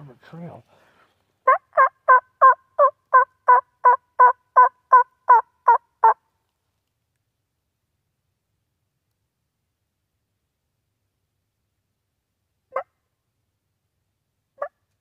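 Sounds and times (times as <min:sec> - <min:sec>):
wild turkey yelping: 0:01.4 - 0:06.2, 0:14.6 - 0:14.8.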